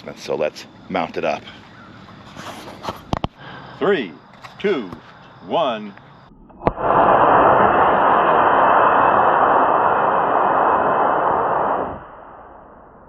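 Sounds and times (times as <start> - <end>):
rocket motor rushing hiss: 6.7 - 12.6.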